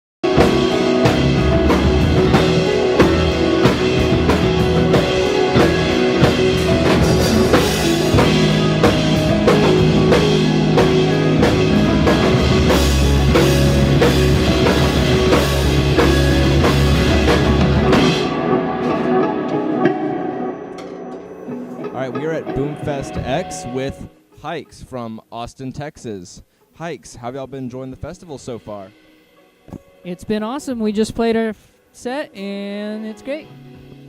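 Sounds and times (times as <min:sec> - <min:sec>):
rock music with drums: 0:00.2 - 0:24.2.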